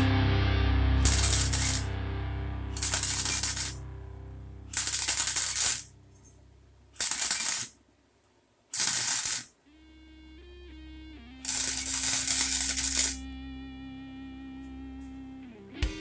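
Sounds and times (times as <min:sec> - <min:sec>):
quiet background music: 0:00.0 - 0:06.9, 0:09.7 - 0:16.0
welding crackling hiss: 0:08.8 - 0:09.5.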